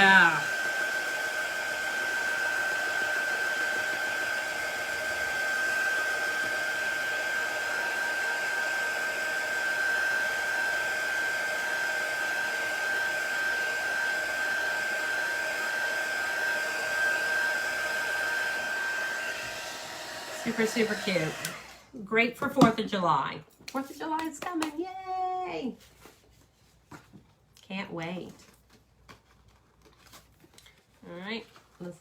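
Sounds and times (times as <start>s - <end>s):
hair dryer blowing with high whine: 0.0s - 22.0s.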